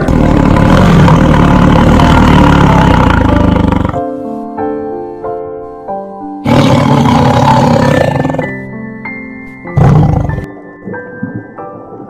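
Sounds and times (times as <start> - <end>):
tiger roaring: 0.0 - 4.0, 6.4 - 8.5, 9.8 - 10.5
background music: 0.0 - 12.0.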